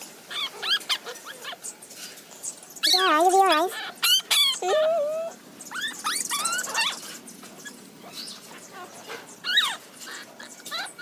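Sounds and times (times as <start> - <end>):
puppy whimpering: 2.8 - 7.0, 9.5 - 11.0.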